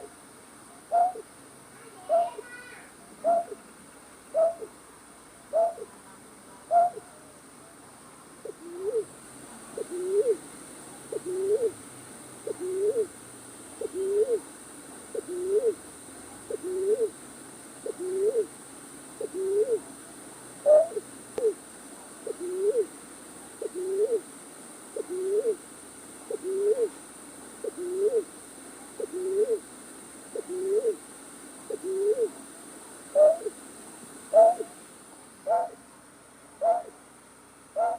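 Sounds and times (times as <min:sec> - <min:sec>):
night bird hooting: 0:00.9 - 0:01.3, 0:03.2 - 0:03.6, 0:04.3 - 0:04.8, 0:05.5 - 0:05.9, 0:06.7 - 0:07.2, 0:08.4 - 0:09.1, 0:09.8 - 0:10.4, 0:11.1 - 0:11.8, 0:12.4 - 0:13.2, 0:13.8 - 0:14.5, 0:15.1 - 0:15.8, 0:16.5 - 0:17.2, 0:17.8 - 0:18.5, 0:19.2 - 0:19.9, 0:20.6 - 0:21.6, 0:22.2 - 0:22.9, 0:23.6 - 0:24.3, 0:25.0 - 0:25.6, 0:26.3 - 0:27.0, 0:27.6 - 0:28.3, 0:29.0 - 0:29.6, 0:30.3 - 0:31.0, 0:31.7 - 0:32.4, 0:33.1 - 0:33.6, 0:34.3 - 0:34.8, 0:35.4 - 0:35.8, 0:36.6 - 0:37.0.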